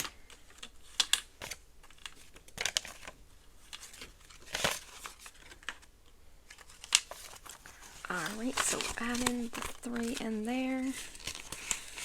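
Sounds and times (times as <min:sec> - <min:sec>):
banknotes crinkling: 0:00.0 - 0:12.0
plastic envelope rustling: 0:00.0 - 0:12.0.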